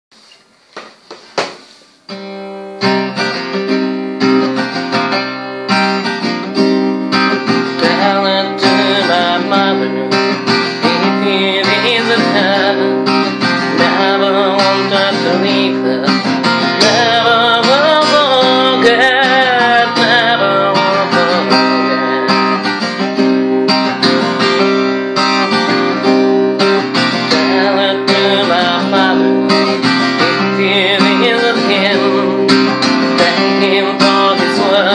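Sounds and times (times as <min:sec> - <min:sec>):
acoustic guitar chords: 0:01.4 - 0:34.9.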